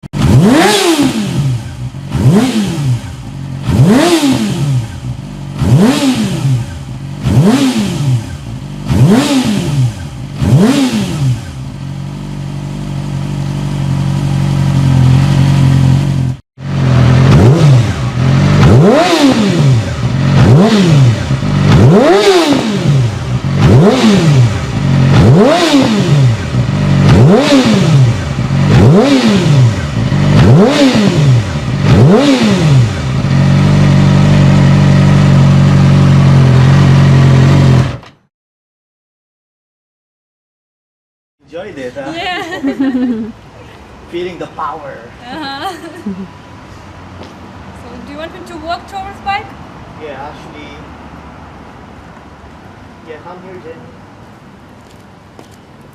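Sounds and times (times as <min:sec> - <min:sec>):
motorcycle engine revving: 0:00.1 - 0:38.3.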